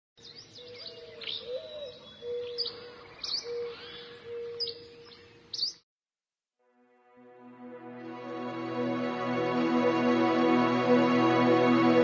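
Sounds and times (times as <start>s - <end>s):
birds chirping: 0.2s - 5.8s.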